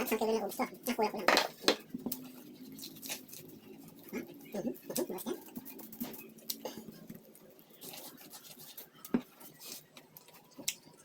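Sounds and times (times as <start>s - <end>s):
person chewing corn crunching: 0.0s - 11.0s.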